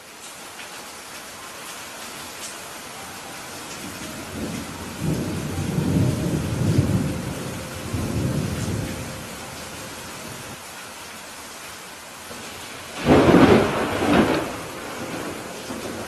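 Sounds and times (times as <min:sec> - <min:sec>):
steady rain: 0:00.0 - 0:16.0
thunder rumbling: 0:03.4 - 0:10.6, 0:12.4 - 0:16.0.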